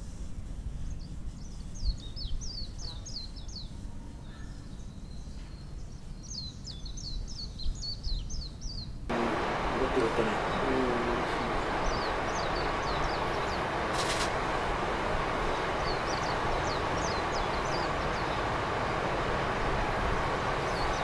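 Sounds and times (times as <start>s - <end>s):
small birds chirping: 0.8s - 21.0s
steady rushing noise: 9.1s - 21.0s
brief sharp hiss: 13.8s - 14.6s.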